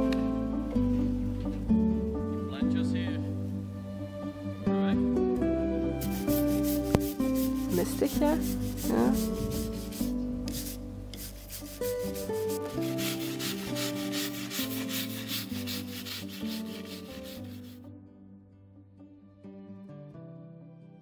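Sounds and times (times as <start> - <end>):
soft background music: 0.0 - 21.0
scraping strokes on a log: 6.0 - 17.8.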